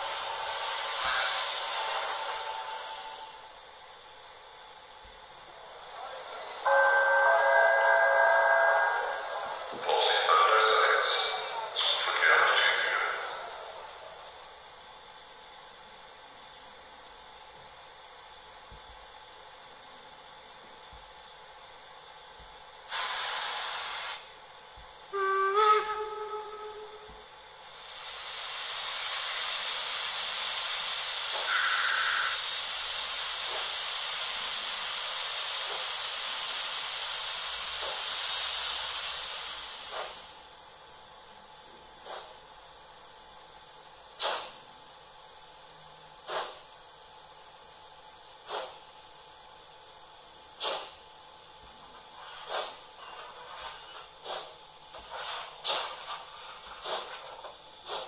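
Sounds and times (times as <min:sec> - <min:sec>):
steam hiss: 0:22.9 - 0:24.3, 0:27.6 - 0:40.5.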